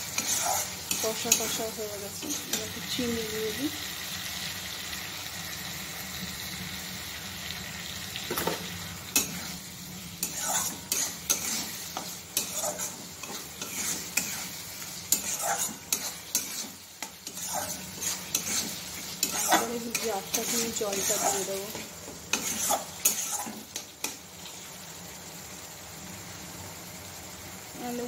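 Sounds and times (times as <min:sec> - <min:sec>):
metal spatula scraping pan: 0:00.0 - 0:03.1, 0:08.4 - 0:24.2
food sizzling in oil: 0:00.0 - 0:28.0.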